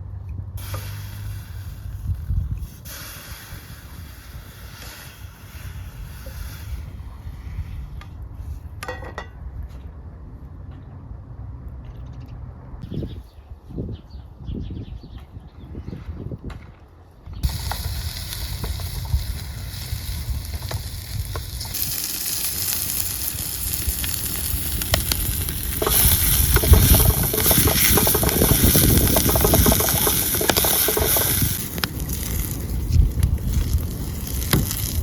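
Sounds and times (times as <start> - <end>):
fire crackling: 0.6 - 7.4, 17.4 - 35.0
food sizzling in a pan: 17.4 - 35.0.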